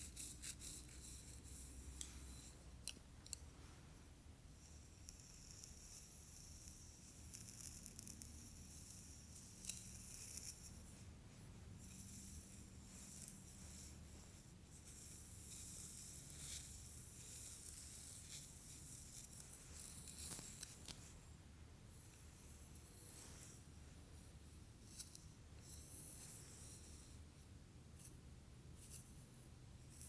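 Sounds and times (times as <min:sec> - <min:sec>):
hair rustling as handled: 0:11.8 - 0:27.4.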